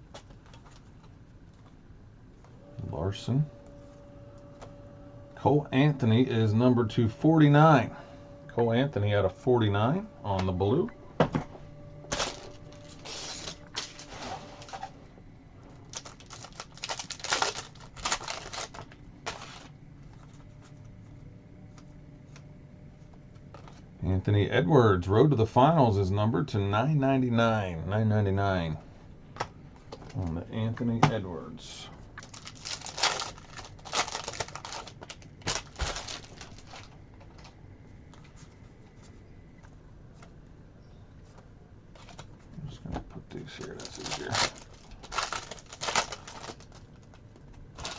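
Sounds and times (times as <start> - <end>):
cards rustling and clicking: 0.0 - 1.8, 12.1 - 14.9, 15.9 - 20.5, 32.2 - 39.2, 43.6 - 47.9.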